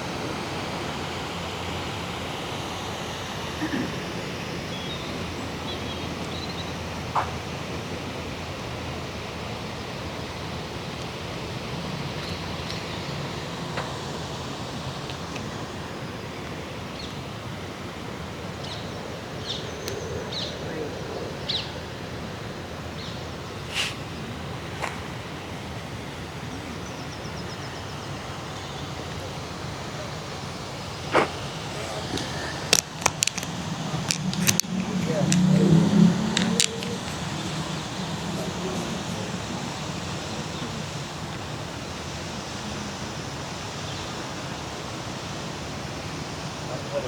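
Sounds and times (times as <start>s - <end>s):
distant city traffic rumble: 0.0s - 47.0s
steady outdoor rushing noise: 0.0s - 47.0s
sharp clicks: 31.1s - 38.6s.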